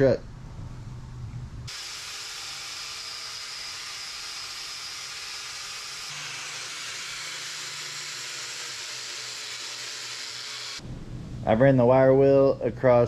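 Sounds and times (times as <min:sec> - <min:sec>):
wire wheel grinding steel: 0:01.7 - 0:10.8.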